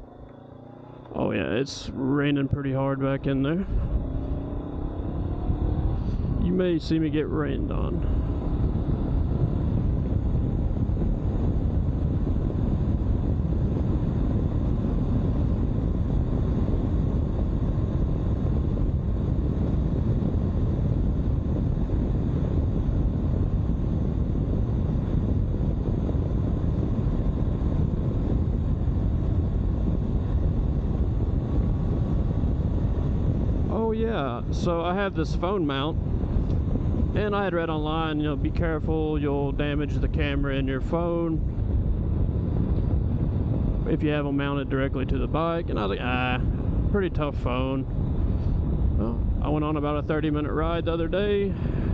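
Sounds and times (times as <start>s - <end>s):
motorcycle engine running: 0.0s - 33.9s
wind and road noise: 0.0s - 51.9s.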